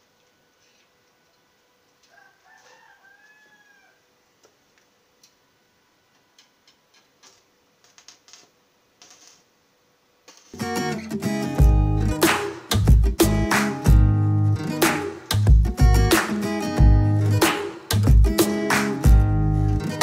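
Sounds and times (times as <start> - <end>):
rooster crowing: 2.1 - 4.2
guitar music: 10.6 - 20.0.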